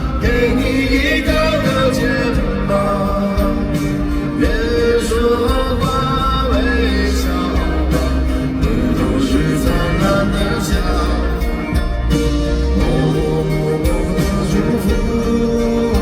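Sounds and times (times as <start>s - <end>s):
band playing a pop ballad: 0.0s - 16.0s
person singing: 0.0s - 16.0s.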